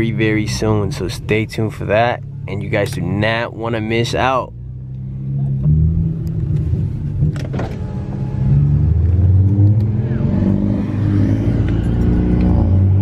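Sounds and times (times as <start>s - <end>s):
car engine accelerating: 4.1s - 13.0s.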